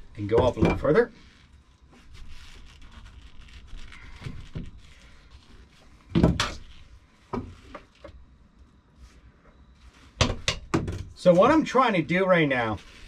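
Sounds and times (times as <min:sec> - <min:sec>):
metal tool rest clunks and knocks: 0:00.3 - 0:01.0.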